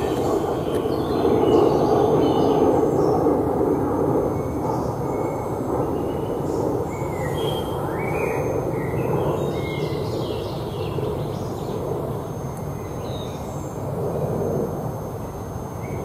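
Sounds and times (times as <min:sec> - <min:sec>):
woodland birds singing: 0:00.0 - 0:03.3, 0:04.3 - 0:11.9, 0:12.5 - 0:13.8
low rushing noise: 0:00.0 - 0:09.7.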